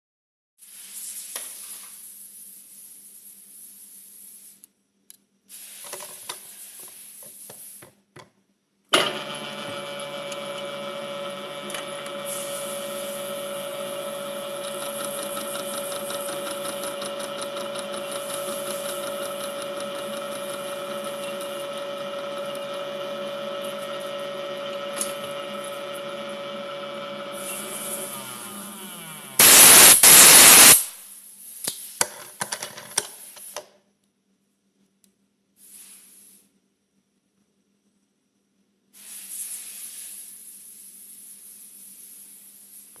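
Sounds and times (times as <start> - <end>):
milling machine running: 9.0 - 30.8
steady machine whine: 9.1 - 30.9.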